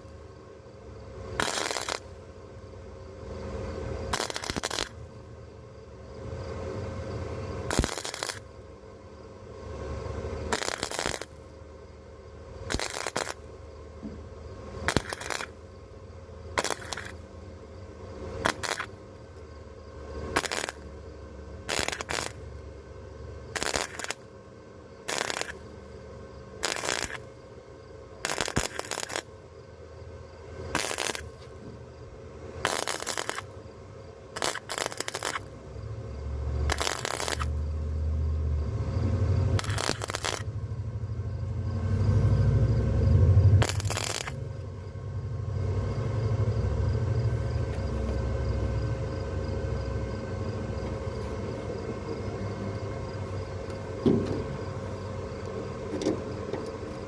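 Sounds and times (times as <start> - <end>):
welder arc crackling: 1.4 - 2.7, 4.0 - 5.2, 7.6 - 8.7, 10.4 - 11.6, 12.7 - 13.8, 14.8 - 17.5, 18.4 - 19.5, 20.2 - 21.0, 21.7 - 22.8, 23.5 - 24.3, 25.0 - 25.8, 26.6 - 27.3, 28.2 - 29.4, 30.7 - 31.6, 32.6 - 33.6, 34.4 - 35.8, 36.6 - 38.1, 39.4 - 40.9, 41.5 - 44.8
low rumble: 37.6 - 55.4.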